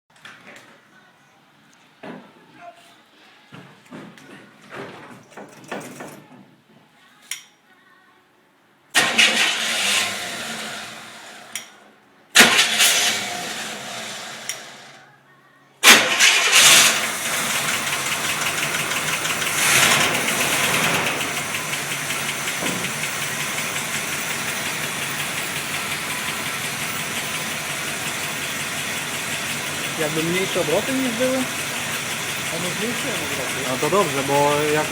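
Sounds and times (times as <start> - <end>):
car engine starting and idling: 9.0 - 15.0, 15.8 - 34.9.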